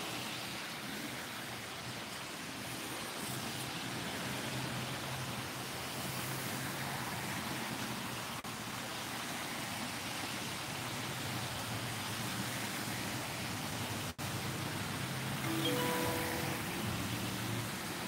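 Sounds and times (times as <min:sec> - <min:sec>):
heavy rain on wet street: 0:00.0 - 0:16.0.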